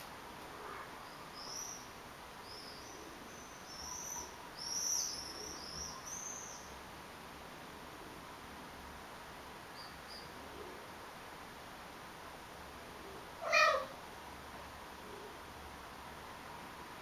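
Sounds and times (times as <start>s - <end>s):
small bird chirping: 1.0s - 6.8s, 9.7s - 10.4s.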